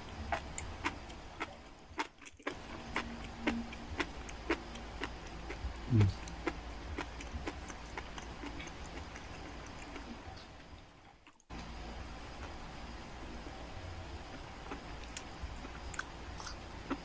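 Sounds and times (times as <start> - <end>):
wet chewing clicks: 0.3 - 10.1.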